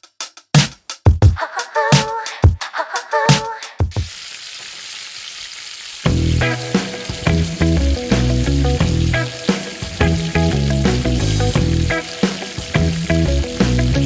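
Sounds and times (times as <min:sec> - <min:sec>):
food sizzling in hot oil: 0:03.9 - 0:14.0
music with heavy bass beat: 0:06.1 - 0:14.0.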